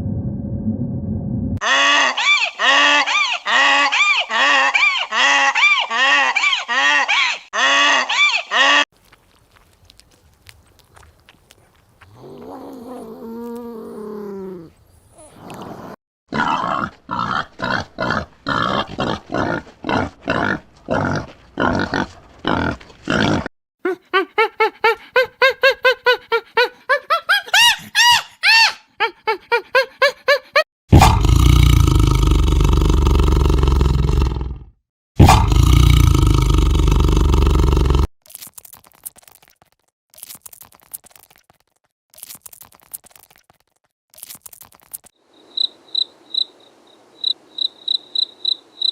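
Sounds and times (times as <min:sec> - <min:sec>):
lion roaring: 0:12.1 - 0:23.5, 0:30.9 - 0:38.1
loud grunts: 0:30.9 - 0:34.2, 0:35.2 - 0:38.1.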